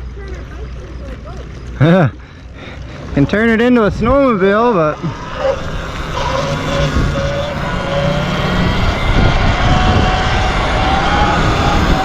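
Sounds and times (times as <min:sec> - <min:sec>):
vehicle motor whining: 0:00.6 - 0:12.0
wind rumble on microphone: 0:03.7 - 0:12.0.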